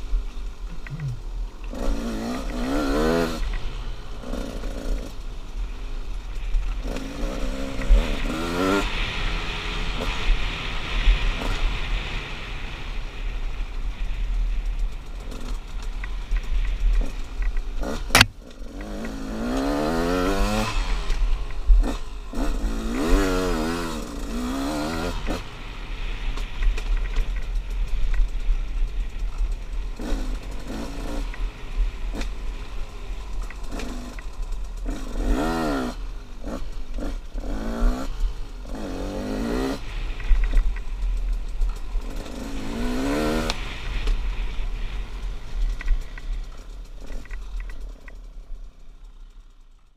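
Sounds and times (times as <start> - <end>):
motorcycle engine revving: 0.6 - 5.3, 6.4 - 12.7, 14.6 - 49.9.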